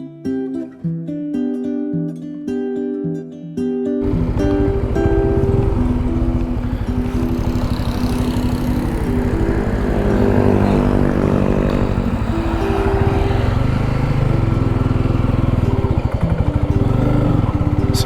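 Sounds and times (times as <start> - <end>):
motorcycle engine running: 4.0 - 18.0.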